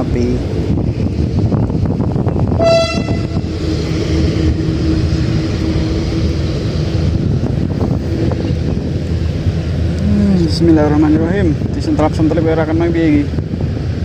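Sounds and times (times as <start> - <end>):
diesel train rumbling: 0.0 - 14.0
train horn toot: 2.5 - 3.6.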